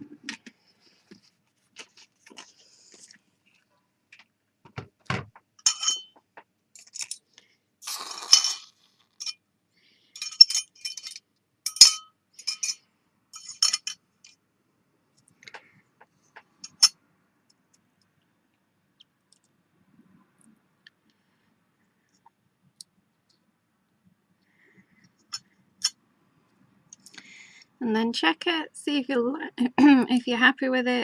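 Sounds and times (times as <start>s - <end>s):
metal clinking on glass: 5.6s - 6.2s, 10.2s - 12.8s, 13.4s - 14.0s.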